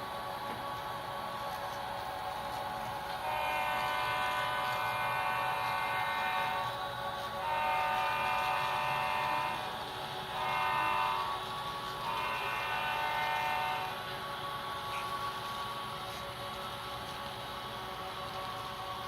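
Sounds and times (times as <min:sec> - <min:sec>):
locomotive air horn blasts: 0:03.2 - 0:06.7, 0:07.4 - 0:09.7, 0:10.3 - 0:14.0.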